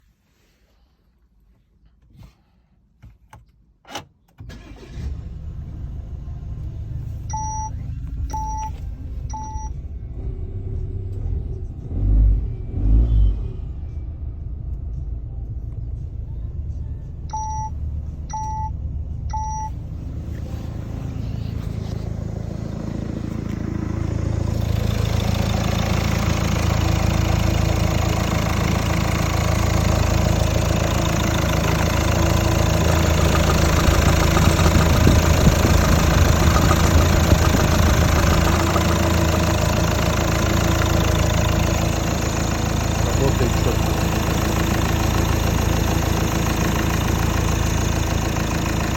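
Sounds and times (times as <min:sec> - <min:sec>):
diesel engine idling: 0:04.5 - 0:12.0, 0:13.9 - 0:48.9
short electronic beeps: 0:07.3 - 0:09.8, 0:17.3 - 0:19.8.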